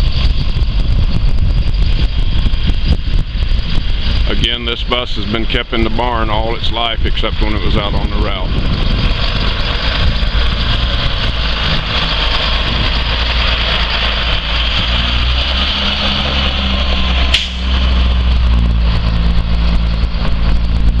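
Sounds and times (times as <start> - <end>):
diesel bus engine idling: 4.0 - 21.0
sharp click: 17.3 - 17.7.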